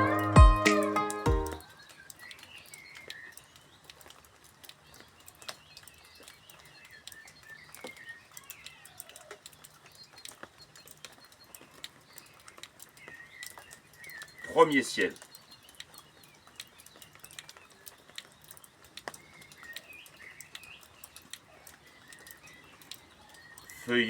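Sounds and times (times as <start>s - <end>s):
birds chirping: 0.0s - 3.9s.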